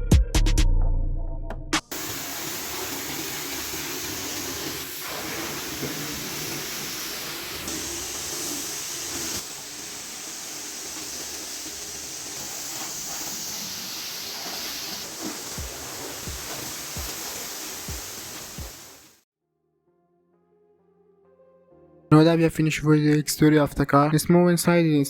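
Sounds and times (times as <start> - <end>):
pressure washer spraying water: 1.9 - 19.2.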